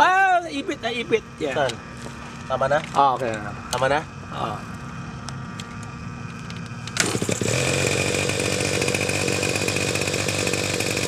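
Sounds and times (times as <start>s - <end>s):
model helicopter engine running: 3.8s - 11.0s.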